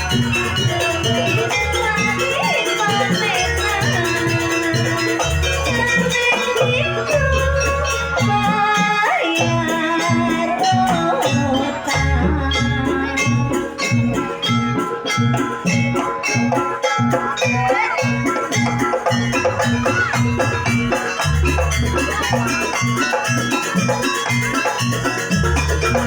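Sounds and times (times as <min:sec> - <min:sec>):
fast rattling percussion: 0:00.0 - 0:26.0
wavering bending melody: 0:00.0 - 0:26.0
drum strokes: 0:09.5 - 0:26.0.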